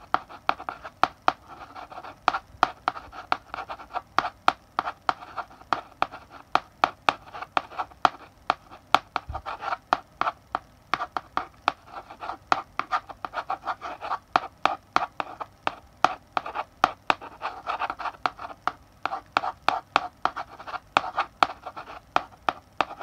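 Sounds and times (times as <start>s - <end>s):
chalk scratching on blackboard: 0.0s - 23.0s
chalk tapping on blackboard: 0.0s - 23.0s.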